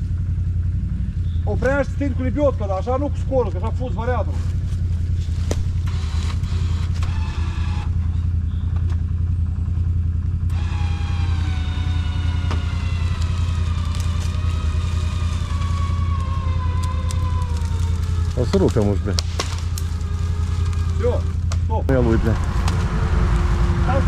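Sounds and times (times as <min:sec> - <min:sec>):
atv engine running: 0:00.0 - 0:24.0
electric winch motor whining: 0:04.4 - 0:08.9, 0:10.4 - 0:24.0.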